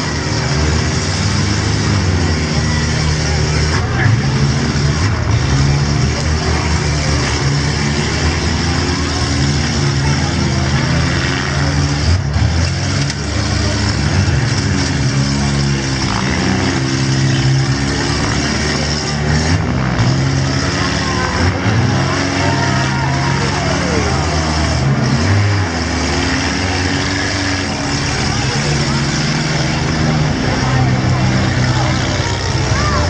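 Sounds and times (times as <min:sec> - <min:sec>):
car engines revving: 0:00.0 - 0:33.0.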